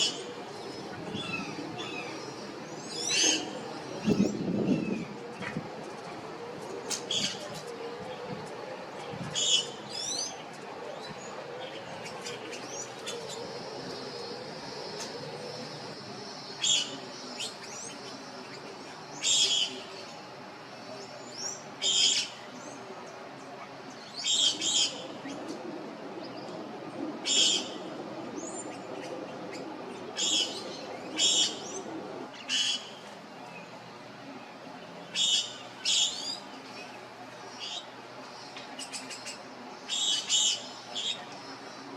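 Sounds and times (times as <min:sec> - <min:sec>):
steady background hiss: 0:00.0 - 0:41.9
wild birds calling: 0:00.0 - 0:41.9.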